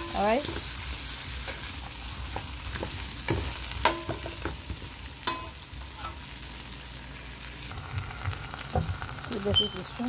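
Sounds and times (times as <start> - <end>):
potatoes sizzling in oil: 0.0 - 10.0
metal spoon scraping and clinking pan: 5.2 - 6.2.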